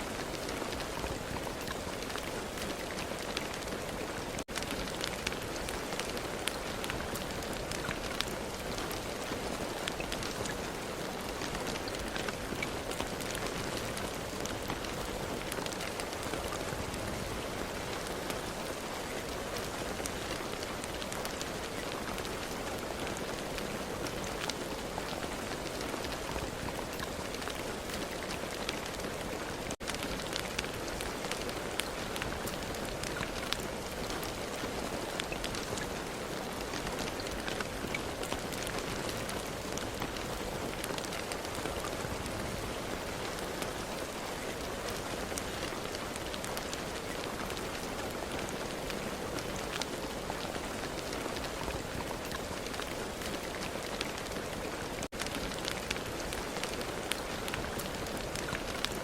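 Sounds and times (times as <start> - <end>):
raindrops ticking: 0.0 - 59.0
steady rain falling: 0.0 - 59.0.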